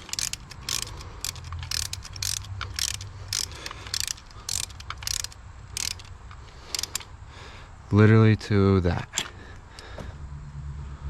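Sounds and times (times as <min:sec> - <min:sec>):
hand ratchet clicking: 0:00.0 - 0:07.1.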